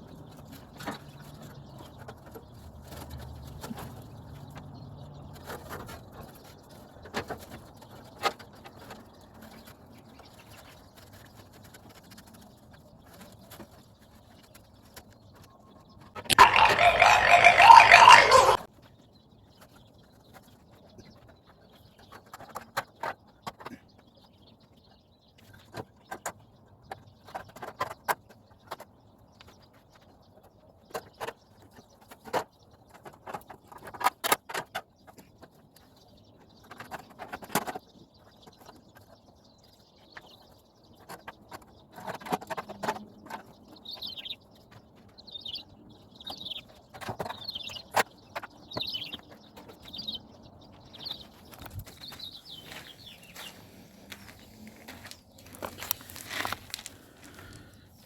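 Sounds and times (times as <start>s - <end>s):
bird chirping: 12.5s - 18.7s, 35.9s - 58.0s.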